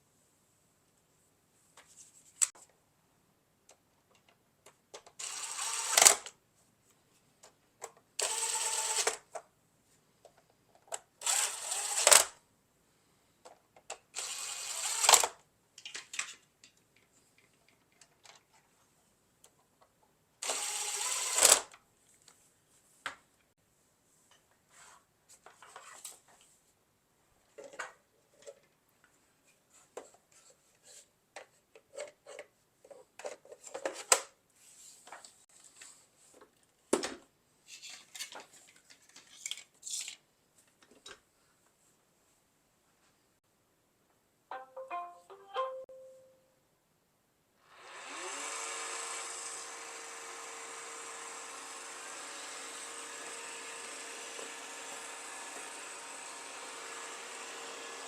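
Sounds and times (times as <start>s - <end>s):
power screwdriver driving screws: 5.2s - 6.3s, 8.2s - 9.2s, 11.2s - 12.3s, 14.2s - 15.4s, 20.4s - 21.7s.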